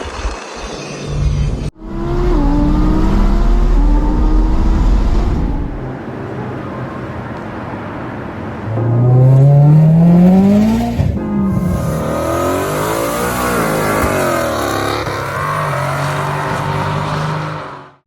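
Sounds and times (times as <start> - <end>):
car engine accelerating: 1.1 - 6.0, 8.7 - 17.9.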